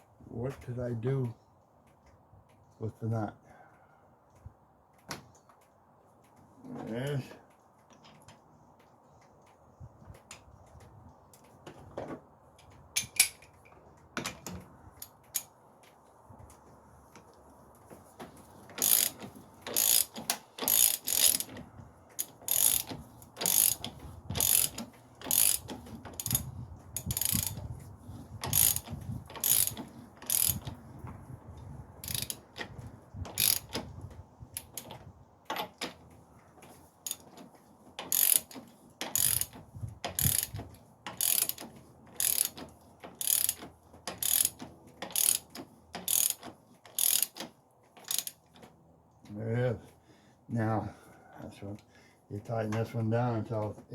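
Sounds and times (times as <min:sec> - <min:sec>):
ratchet wrench clicking: 0:18.8 - 0:21.6, 0:22.2 - 0:27.6, 0:28.4 - 0:30.8, 0:32.0 - 0:32.7, 0:33.3 - 0:33.8, 0:34.6 - 0:36.0, 0:37.0 - 0:37.3, 0:38.0 - 0:48.4.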